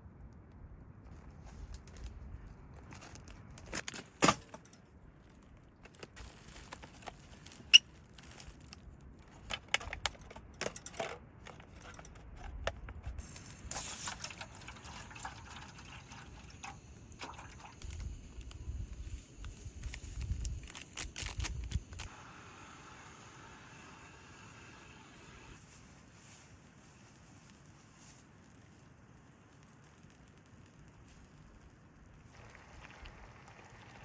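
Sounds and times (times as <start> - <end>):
brief hiss: 22.0 - 26.2.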